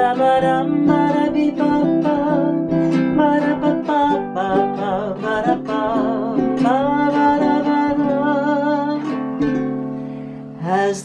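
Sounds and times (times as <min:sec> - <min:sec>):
strummed ukulele chords: 0:00.0 - 0:11.0.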